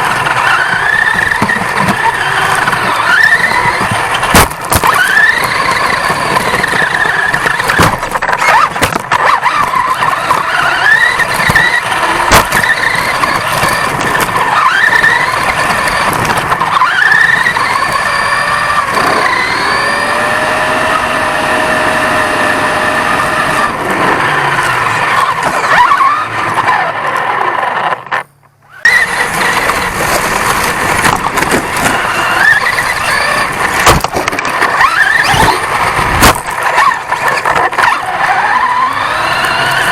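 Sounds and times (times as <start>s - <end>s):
rough rattle: 0.0s - 20.0s, 28.8s - 39.9s
toy truck motor whine: 0.0s - 39.9s.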